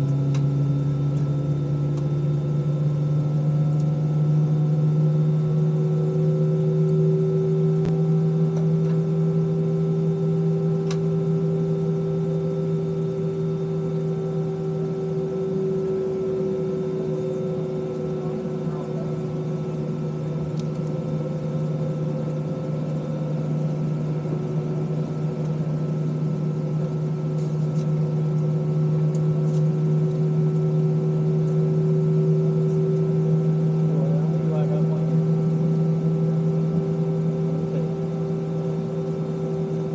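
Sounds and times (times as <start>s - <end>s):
airplane cabin engine hum: 0.0s - 39.9s.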